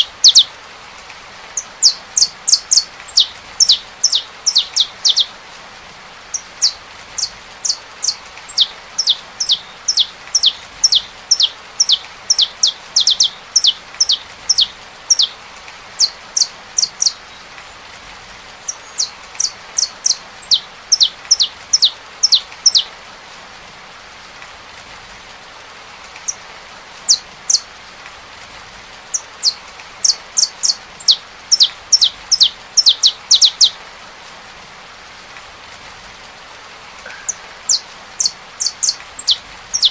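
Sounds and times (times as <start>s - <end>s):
finch singing: 0.0s - 0.5s, 1.6s - 5.4s, 6.3s - 15.4s, 16.0s - 17.5s, 18.6s - 22.9s, 29.1s - 33.8s, 37.0s - 39.9s
rain hissing: 0.0s - 39.9s.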